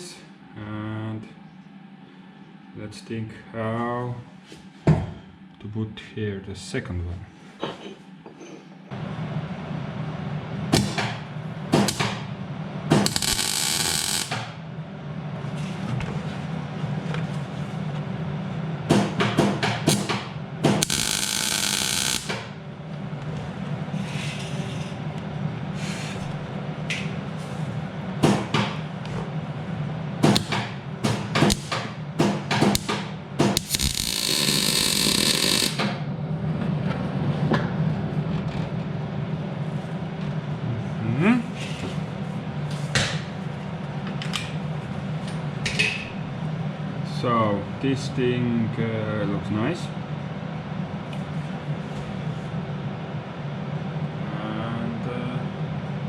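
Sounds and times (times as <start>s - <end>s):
steady low hum: 0.0s - 56.0s
crackling welding bursts: 12.9s - 14.6s, 20.8s - 22.6s, 31.4s - 31.8s, 32.7s - 35.8s.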